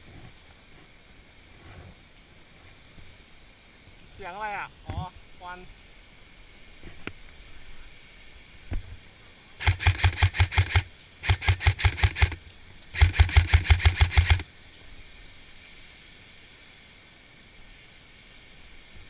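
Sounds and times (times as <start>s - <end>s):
airsoft rifle full-auto bursts: 9.6s - 14.5s.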